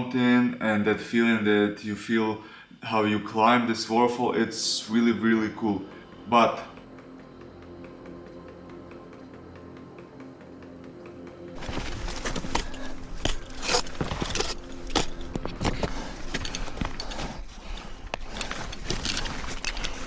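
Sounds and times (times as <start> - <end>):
ice tools knocking and scraping ice: 5.0 - 20.0
metal gear clinking and jangling: 11.6 - 20.0.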